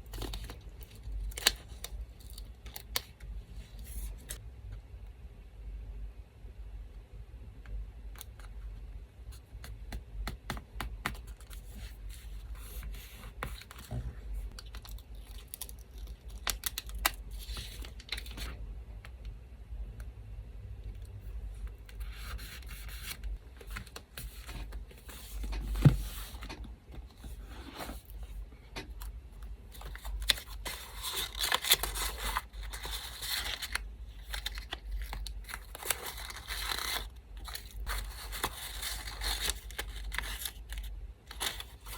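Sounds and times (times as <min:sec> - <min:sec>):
paper tearing and rustling: 0:30.0 - 0:41.9.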